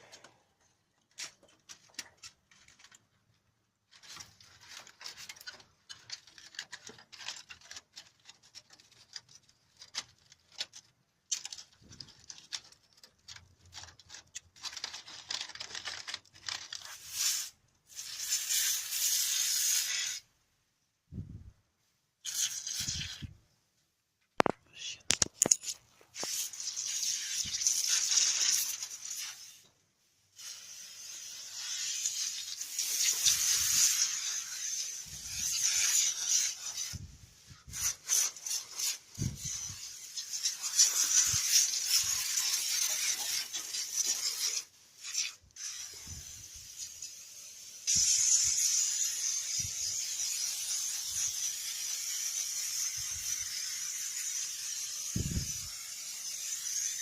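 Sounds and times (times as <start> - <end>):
hissing scrubbing of engine cleaning: 30.4 - 57.0.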